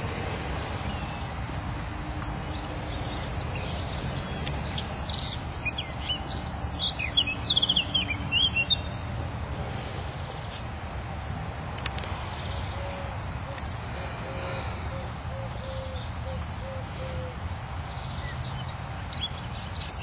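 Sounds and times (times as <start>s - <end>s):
steady low rumble: 0.0s - 16.7s
small bird chirping and trilling: 2.9s - 9.0s.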